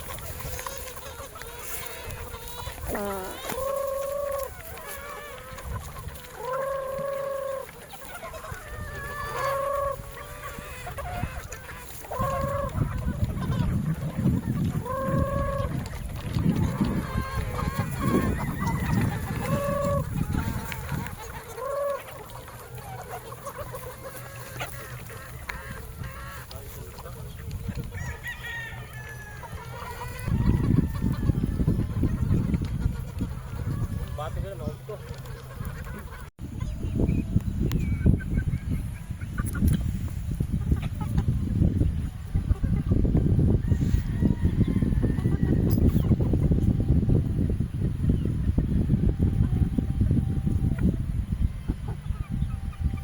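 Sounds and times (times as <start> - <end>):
roosters crowing: 0.0 - 32.4, 43.4 - 46.3
rooster clucking: 0.0 - 37.2, 37.8 - 47.0
rooster crowing: 28.0 - 29.6.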